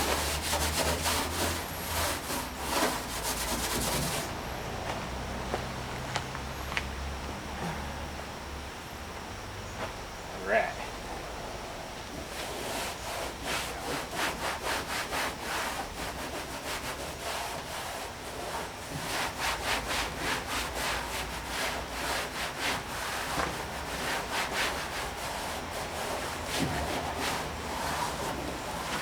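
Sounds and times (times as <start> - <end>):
hand scrubbing sheet metal: 0.0 - 4.3, 12.2 - 29.0.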